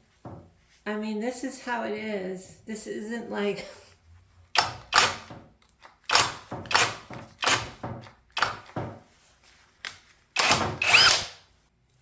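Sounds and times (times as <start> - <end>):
drill handling knocks and rubbing: 0.1 - 0.6, 6.3 - 9.1.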